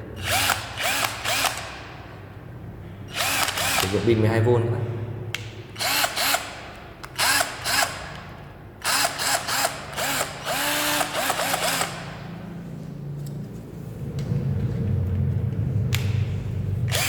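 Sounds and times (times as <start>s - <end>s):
cordless drill bursts: 0.2s - 1.8s, 3.1s - 4.0s, 5.8s - 6.6s, 7.2s - 8.0s, 8.8s - 12.2s.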